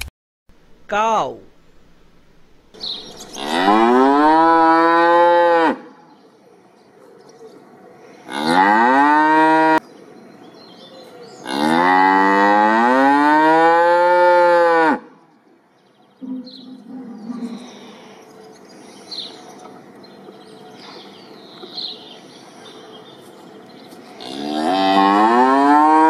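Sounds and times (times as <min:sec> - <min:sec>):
cow mooing: 0:03.4 - 0:05.9, 0:08.3 - 0:09.8, 0:11.4 - 0:15.1, 0:24.2 - 0:26.0.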